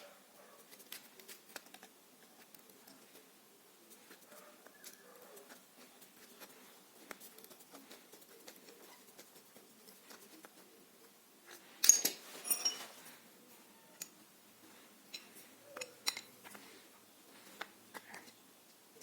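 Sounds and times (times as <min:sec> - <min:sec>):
small metal parts clinking: 0:11.8 - 0:12.9, 0:15.1 - 0:16.3.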